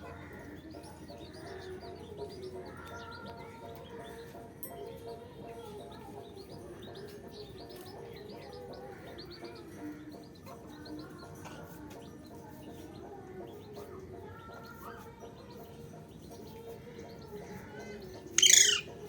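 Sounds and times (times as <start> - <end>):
birds chirping: 18.0 - 19.0.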